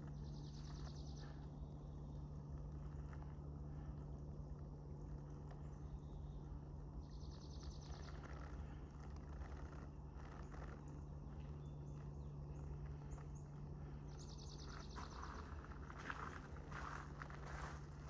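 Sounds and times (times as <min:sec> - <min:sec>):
steady low hum: 0:00.0 - 0:18.0
footsteps on a trail: 0:14.6 - 0:18.0.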